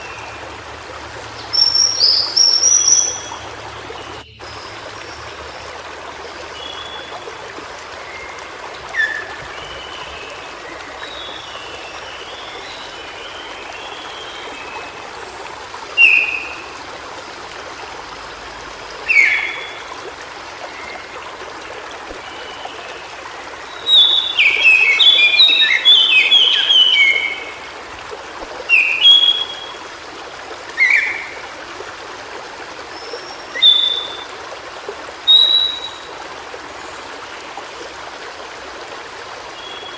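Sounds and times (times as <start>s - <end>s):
stream rushing: 0.0s - 39.9s
bird whistling and warbling: 1.5s - 3.4s.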